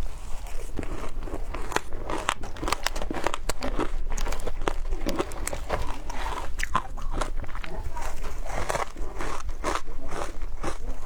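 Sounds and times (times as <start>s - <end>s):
shaved ice crunching: 0.0s - 11.0s.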